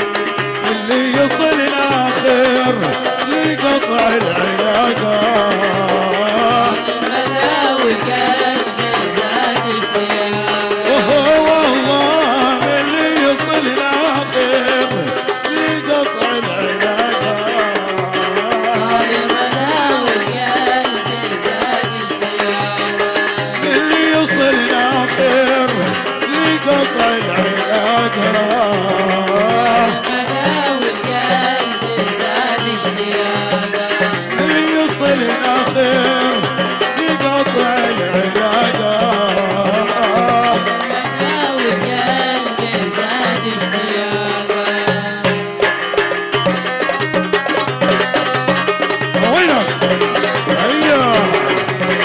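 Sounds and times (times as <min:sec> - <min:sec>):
hand drum percussion: 0:00.0 - 0:52.0
wavering instrumental melody: 0:00.0 - 0:52.0
steady drum beat: 0:45.6 - 0:52.0.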